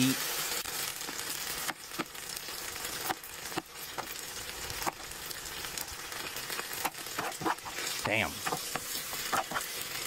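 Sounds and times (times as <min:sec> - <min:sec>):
food sizzling in oil: 0:00.0 - 0:10.0
metal spoon scraping pan: 0:06.8 - 0:09.8.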